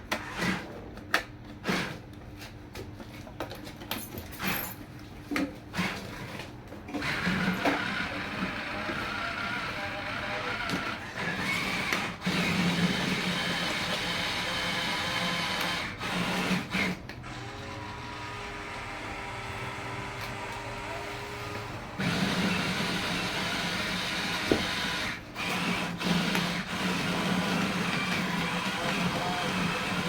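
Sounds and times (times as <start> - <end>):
toy electric motors whirring: 7.0 - 30.0.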